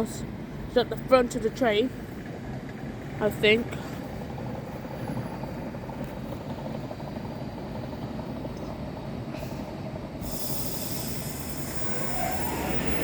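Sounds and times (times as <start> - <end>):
electric train rumbling: 0.0 - 13.0
hiss: 9.4 - 13.0.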